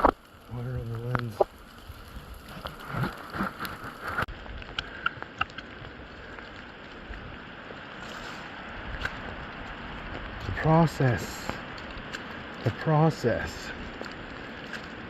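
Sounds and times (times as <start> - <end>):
steady rain: 0.0 - 15.0
raindrops tapping on phone: 0.9 - 7.3.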